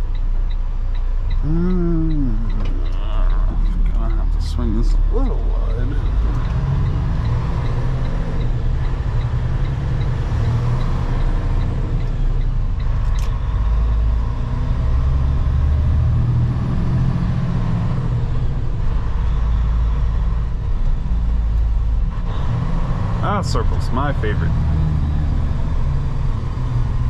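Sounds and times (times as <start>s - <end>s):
light regular ticking: 0.0s - 13.8s
truck engine low rumble: 0.0s - 27.0s.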